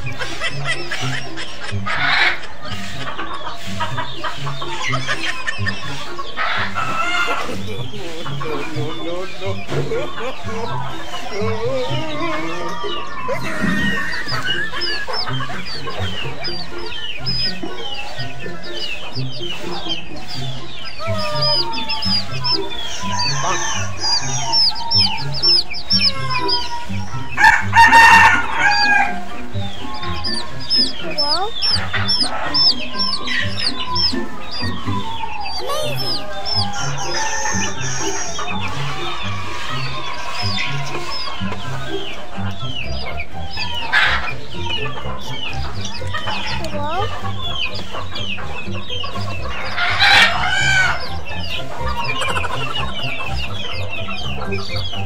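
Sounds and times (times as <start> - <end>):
background music with steady beat: 0.0 - 55.0
chickens clucking: 0.0 - 55.0
repeating high chirps: 12.8 - 27.6, 28.5 - 38.9
rooster crowing: 21.0 - 29.2, 34.8 - 38.4.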